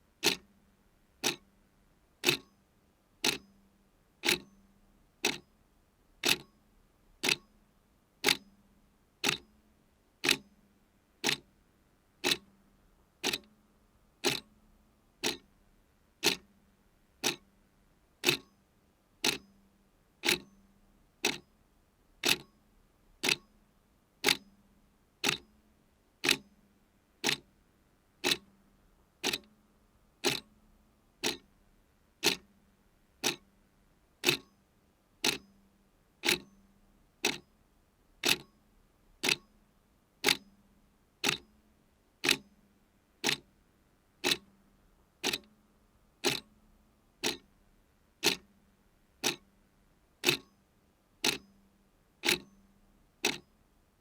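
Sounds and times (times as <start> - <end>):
clock ticking: 0.2 - 0.4, 1.2 - 1.4, 2.2 - 2.5, 3.2 - 3.4, 5.2 - 5.4, 6.2 - 6.5, 7.2 - 7.4, 9.2 - 9.4, 10.2 - 10.4, 11.2 - 11.4, 12.2 - 12.4, 13.2 - 13.5, 14.2 - 14.5, 15.2 - 15.4, 16.2 - 16.4, 17.2 - 17.4, 18.2 - 18.5, 19.2 - 19.4, 20.2 - 20.5, 22.2 - 22.5, 23.2 - 23.4, 25.2 - 25.4, 26.2 - 26.4, 27.2 - 27.4, 28.2 - 28.5, 29.2 - 29.5, 30.2 - 30.5, 31.2 - 31.5, 32.2 - 32.5, 33.2 - 33.4, 34.2 - 34.5, 35.2 - 35.4, 36.2 - 36.5, 37.2 - 37.4, 38.2 - 38.5, 39.2 - 39.5, 40.2 - 40.4, 41.2 - 41.4, 42.2 - 42.4, 43.2 - 43.4, 44.2 - 44.5, 45.2 - 45.5, 46.2 - 46.5, 47.2 - 47.5, 48.2 - 48.5, 49.2 - 49.4, 50.2 - 50.5, 51.2 - 51.4, 52.2 - 52.5, 53.2 - 53.5.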